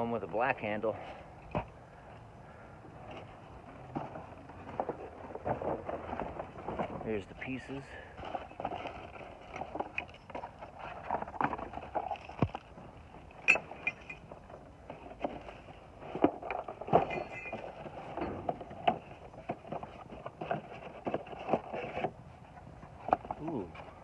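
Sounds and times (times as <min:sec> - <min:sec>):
metal hardware clinking and rattling: 0:08.4 - 0:12.5, 0:13.3 - 0:14.6, 0:16.8 - 0:19.1.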